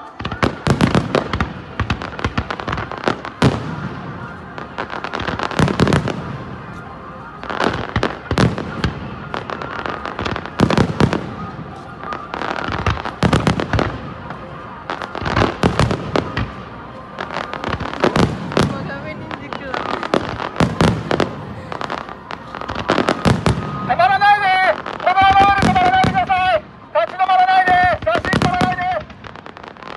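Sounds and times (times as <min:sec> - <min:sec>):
fireworks bangs and crackling: 0:00.0 - 0:29.9.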